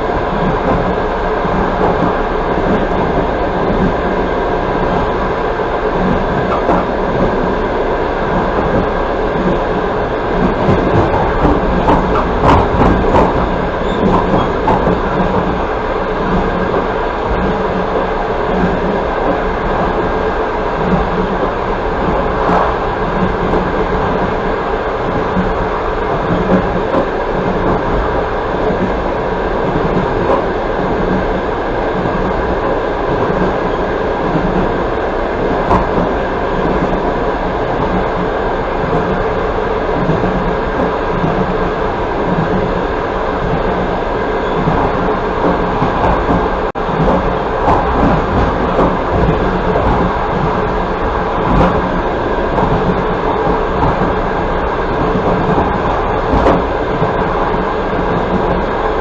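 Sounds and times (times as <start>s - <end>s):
train wheels rumbling on rails: 0.0s - 59.0s
sharp knocks of train wheels: 10.4s - 20.1s, 43.4s - 58.7s.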